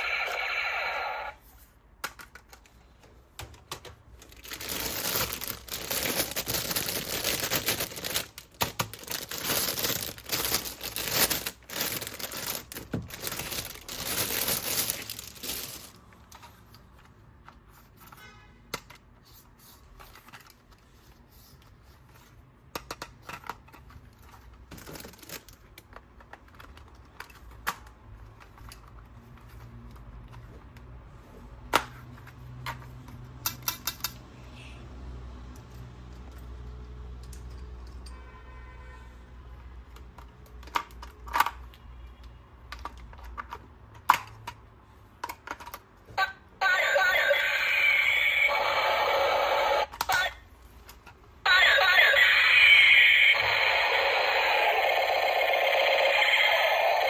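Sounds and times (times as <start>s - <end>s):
plastic packaging tearing and crinkling: 4.2s - 16.1s, 24.8s - 25.7s.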